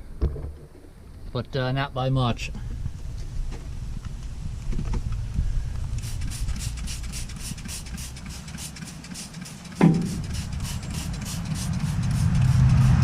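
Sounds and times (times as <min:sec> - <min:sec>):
trigger sprayer hissing squirts: 0:06.0 - 0:13.0
sharp knock: 0:09.8 - 0:10.3.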